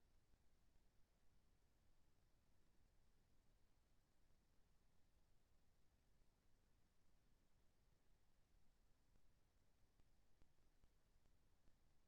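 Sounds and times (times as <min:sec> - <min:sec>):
faint low hum and hiss: 0:00.0 - 0:12.0.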